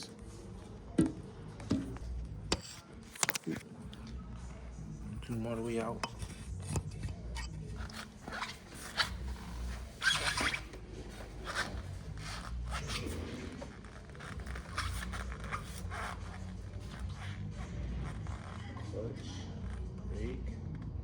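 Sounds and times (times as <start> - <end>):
low room hum: 0.0 - 21.0
objects clicking and scraping: 1.0 - 4.2, 5.1 - 11.8.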